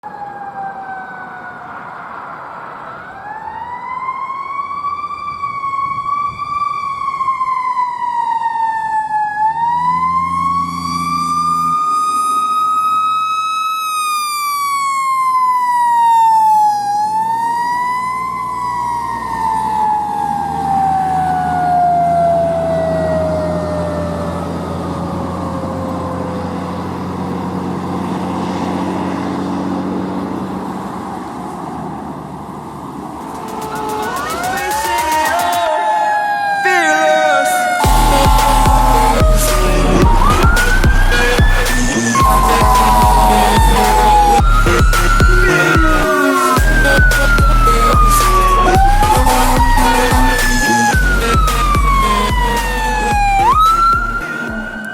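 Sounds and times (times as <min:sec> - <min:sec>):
fire engine siren wailing: 0:00.0 - 0:54.9
truck engine running low: 0:18.7 - 0:34.5, 0:37.8 - 0:54.9.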